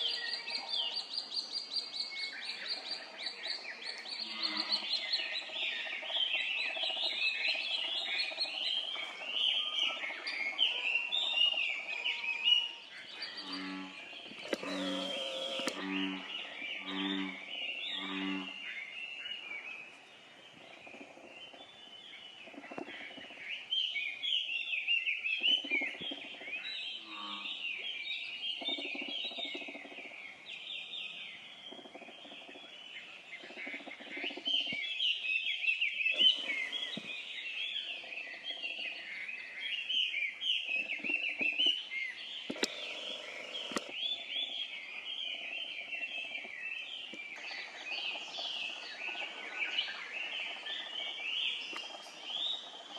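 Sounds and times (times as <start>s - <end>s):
young birds peeping rapidly: 13.0s - 18.6s, 25.4s - 52.9s
sharp clicks: 14.3s - 15.8s, 36.2s - 37.2s, 42.5s - 44.0s.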